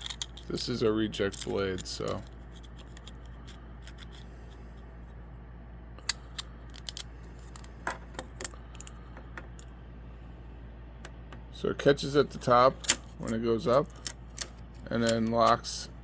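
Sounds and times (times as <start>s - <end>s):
plastic parts clicking and tapping: 0.0s - 4.2s, 6.0s - 9.6s
steady low hum: 0.0s - 16.0s.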